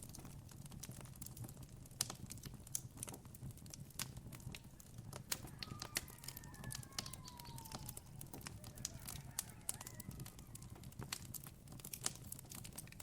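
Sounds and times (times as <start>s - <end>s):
campfire crackling: 0.0s - 13.0s
distant bird call: 4.7s - 10.9s.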